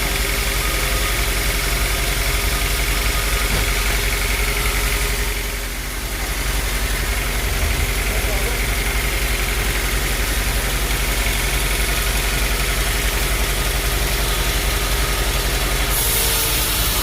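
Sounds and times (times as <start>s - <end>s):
sawmill machinery drone: 0.0s - 17.0s
machinery hiss: 14.4s - 17.0s.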